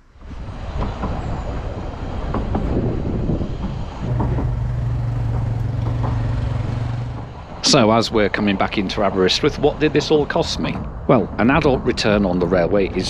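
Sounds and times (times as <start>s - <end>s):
rushing noise: 0.2s - 9.8s
train wheels rattling and clanking: 0.8s - 7.6s
steady low hum: 3.9s - 8.7s.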